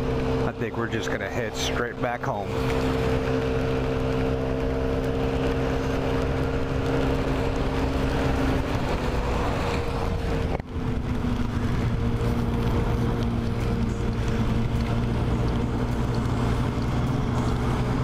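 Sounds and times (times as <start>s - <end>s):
scooter engine running: 0.0s - 18.0s.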